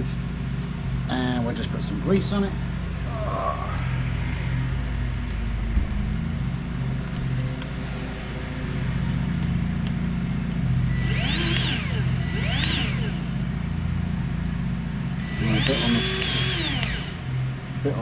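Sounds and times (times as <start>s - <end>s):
low machine hum: 0.0s - 18.0s
rising and falling whistling tones: 10.8s - 13.4s.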